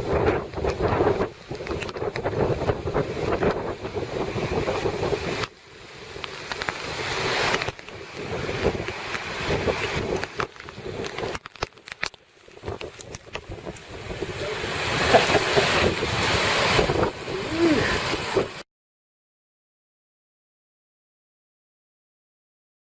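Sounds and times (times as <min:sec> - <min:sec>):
wind buffeting microphone: 0:00.0 - 0:11.6, 0:12.4 - 0:18.6.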